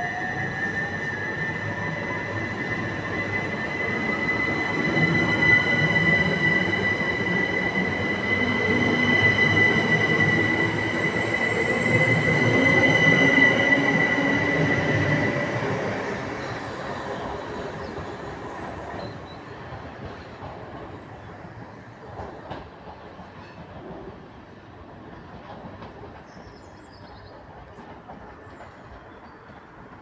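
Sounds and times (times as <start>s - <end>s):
train wheel squeal: 0.0s - 20.5s
train wheels rumbling: 0.0s - 30.0s.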